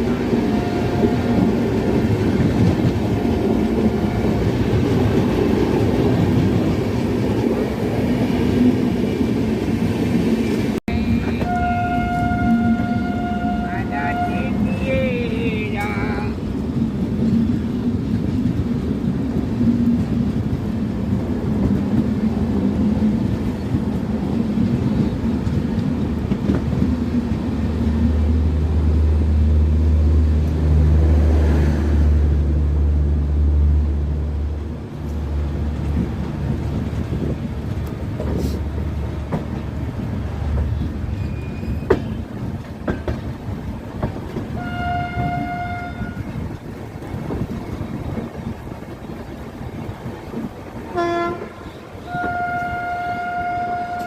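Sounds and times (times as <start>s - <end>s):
train running on rails: 0.0s - 54.0s
train horn: 0.4s - 1.5s, 3.1s - 4.6s, 11.2s - 14.8s, 44.6s - 46.4s, 50.9s - 54.0s.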